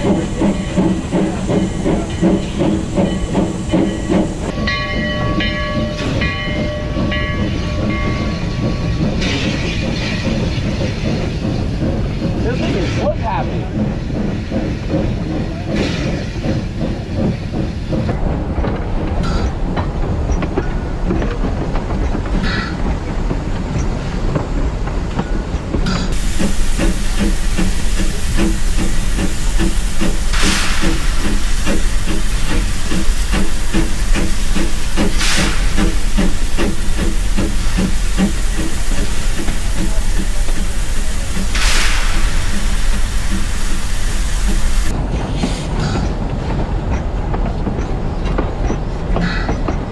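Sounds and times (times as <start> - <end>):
steam hiss bursts: 0.0 - 12.4, 26.1 - 45.0
steam locomotive rhythmic beat: 0.0 - 19.4, 26.1 - 45.0.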